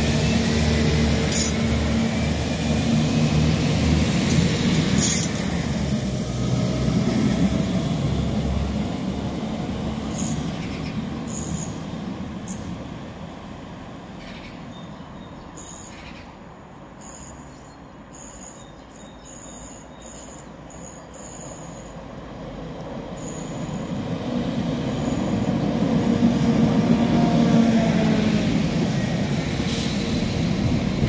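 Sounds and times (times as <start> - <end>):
train approaching: 0.0 - 18.6, 19.4 - 31.0
diesel train pulling away: 0.0 - 18.7, 19.5 - 31.0.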